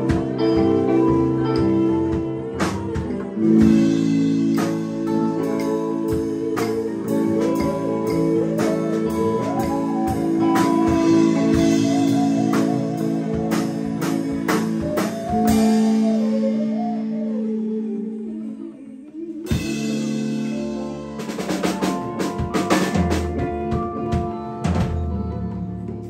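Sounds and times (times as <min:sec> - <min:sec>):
band playing blues jam: 0:00.0 - 0:18.4, 0:19.2 - 0:26.0
bending lead guitar line: 0:00.0 - 0:18.4, 0:19.3 - 0:26.0
steady drum hits: 0:21.2 - 0:26.0.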